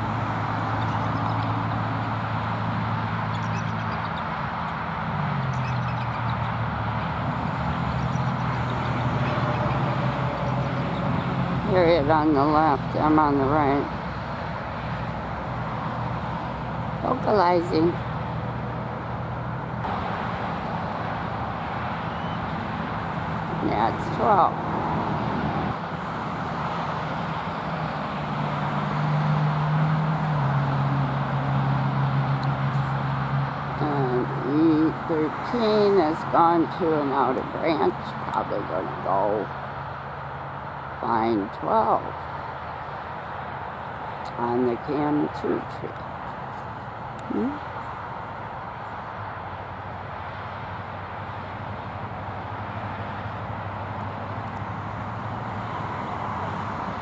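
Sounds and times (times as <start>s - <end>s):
road noise rush: 0.0s - 57.0s
vehicle engines humming: 0.0s - 57.0s
faint high bird calls: 3.3s - 4.3s, 22.0s - 22.5s.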